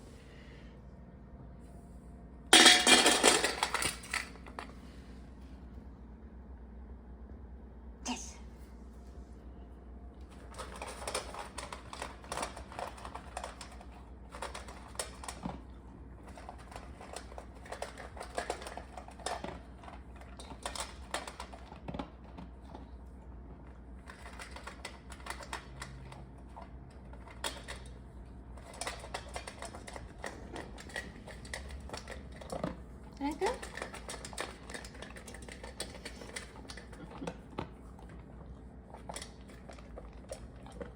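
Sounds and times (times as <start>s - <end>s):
dog chewing food crunchily: 10.2s - 40.9s.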